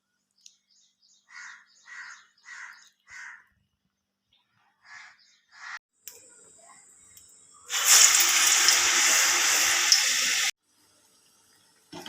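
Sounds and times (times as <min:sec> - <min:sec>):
crow cawing: 0:01.3 - 0:03.5.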